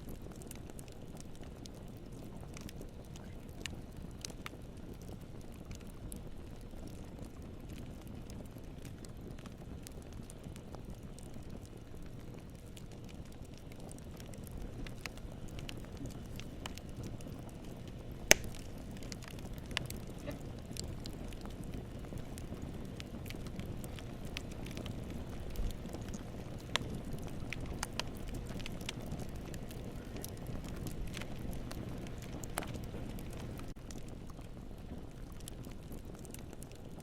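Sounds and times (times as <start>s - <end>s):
campfire crackling: 0.0s - 37.0s
loud pop from fire: 18.3s - 20.6s.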